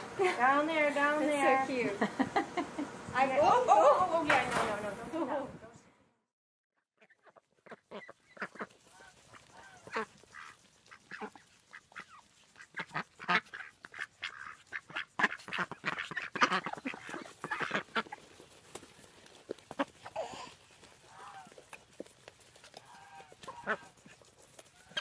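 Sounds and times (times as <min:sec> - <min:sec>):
ducks quacking: 0:07.0 - 0:21.8, 0:22.6 - 0:25.0.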